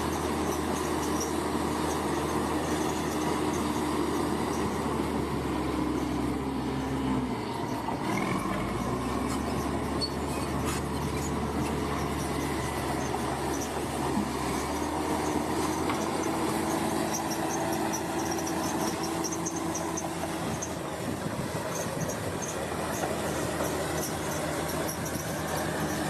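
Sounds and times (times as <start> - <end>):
bulldozer diesel engine running: 0.0 - 26.0
steel tracks squealing and clattering: 0.0 - 26.0.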